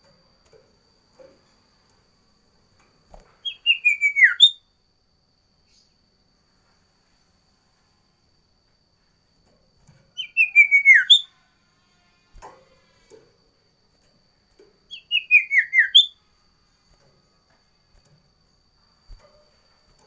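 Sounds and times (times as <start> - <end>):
songbird singing whistled notes: 3.4 - 4.7, 10.2 - 11.4, 14.8 - 16.3.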